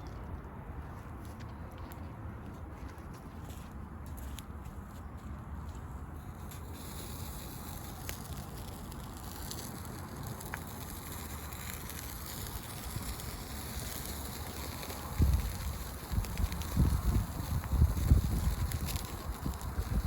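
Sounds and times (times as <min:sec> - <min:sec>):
campfire crackling: 0:06.1 - 0:20.0.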